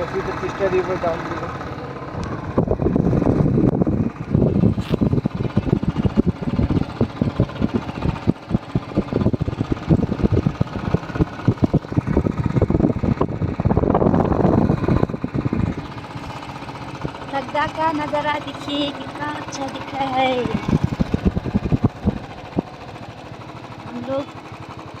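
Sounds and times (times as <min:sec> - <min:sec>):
motorcycle engine running: 0:00.0 - 0:25.0
wind noise on microphone: 0:02.2 - 0:17.2, 0:20.2 - 0:23.0.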